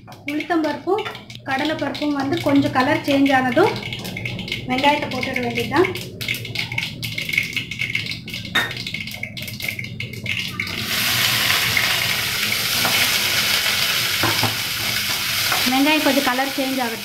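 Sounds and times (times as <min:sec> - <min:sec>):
seeds crackling in hot oil: 0:00.0 - 0:17.0
onions sizzling in oil: 0:10.6 - 0:17.0.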